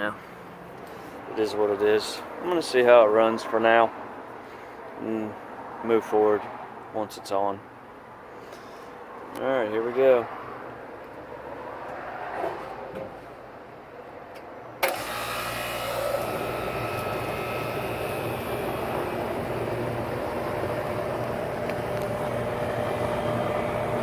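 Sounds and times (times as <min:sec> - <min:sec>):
air conditioner compressor humming: 0:14.8 - 0:24.0
contactor click: 0:14.8 - 0:24.0.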